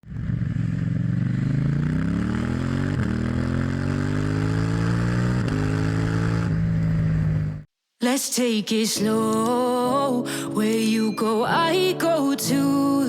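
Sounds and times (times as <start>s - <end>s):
motorcycle engine accelerating: 0.0s - 7.7s.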